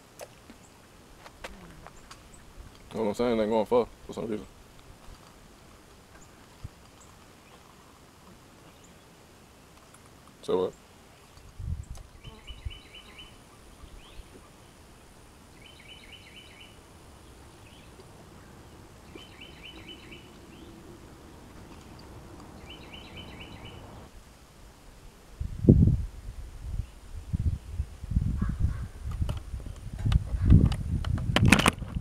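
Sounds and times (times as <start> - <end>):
bird singing quick notes: 17.6 - 24.1.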